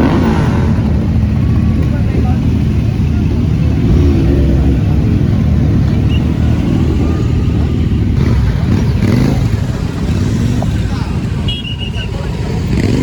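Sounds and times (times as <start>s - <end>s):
motorcycle engine running: 0.0s - 13.0s
road and wind rumble: 0.0s - 13.0s.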